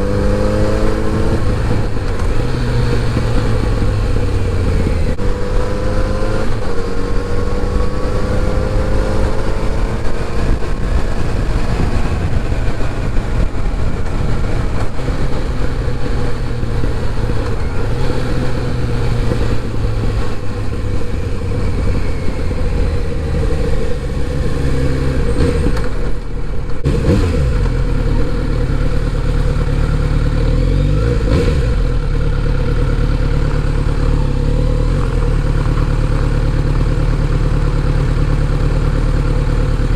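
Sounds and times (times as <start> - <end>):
motorcycle engine: 0.0 - 39.9
road and wind noise: 0.0 - 39.9.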